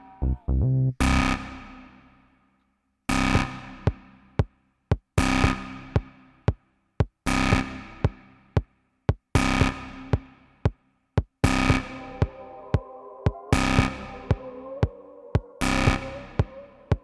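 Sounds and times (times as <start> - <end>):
ambient techno music: 11.4 - 17.0
synthesizer chord stabs: 11.4 - 17.0.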